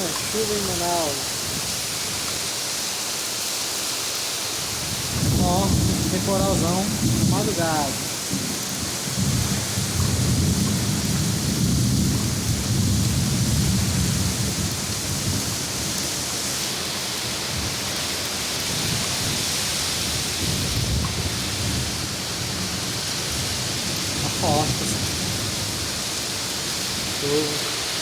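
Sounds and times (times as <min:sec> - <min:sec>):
heavy rain pouring: 0:00.0 - 0:28.0
rolling thunder rumble: 0:04.9 - 0:15.7.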